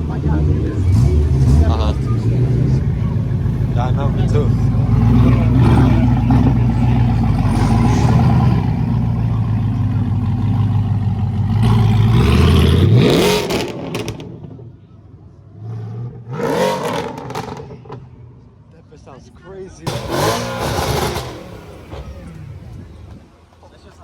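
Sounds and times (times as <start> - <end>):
car engine revving: 0.0 - 14.8, 15.5 - 18.4, 19.8 - 23.4.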